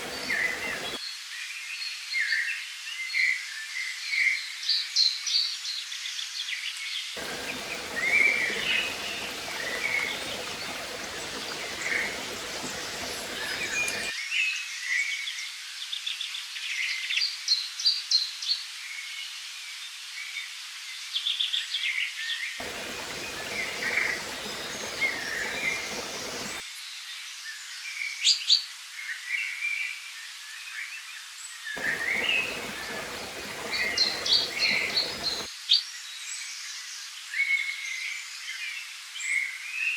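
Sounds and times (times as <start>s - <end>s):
flowing water rushing: 0.0s - 1.0s, 7.2s - 14.1s, 22.6s - 26.6s, 31.8s - 35.5s
low water rumble: 0.0s - 1.0s, 7.2s - 14.1s, 22.6s - 26.6s, 31.8s - 35.5s
songbirds chirping and singing: 0.0s - 1.0s, 7.2s - 14.1s, 22.6s - 26.6s, 31.8s - 35.5s.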